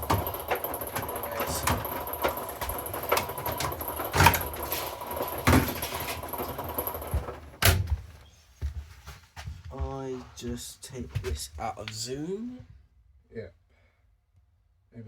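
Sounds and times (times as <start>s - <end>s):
washing machine knocks and clunks: 0.0s - 8.2s
washing machine humming: 0.0s - 8.7s.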